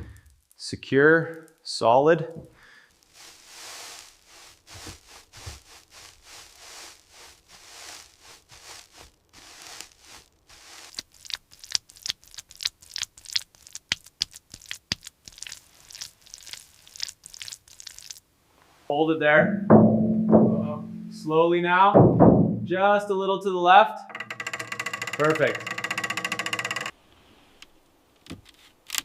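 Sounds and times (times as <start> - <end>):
scraping and crunching strokes: 3.0 - 11.5.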